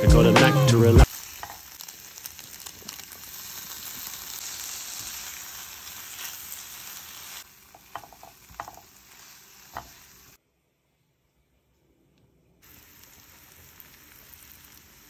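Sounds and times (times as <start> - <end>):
eggs sizzling in a frying pan: 0.9 - 10.4, 12.6 - 15.0
spoon scraping a pan: 7.7 - 8.9.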